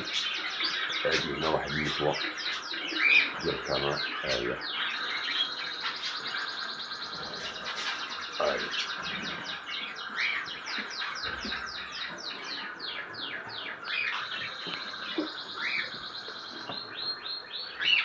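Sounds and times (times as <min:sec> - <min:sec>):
canaries chirping and singing: 0:00.0 - 0:18.0.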